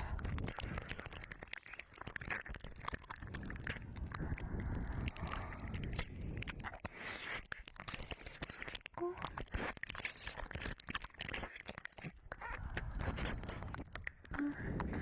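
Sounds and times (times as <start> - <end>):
wet mouth sounds: 0.0 - 15.0.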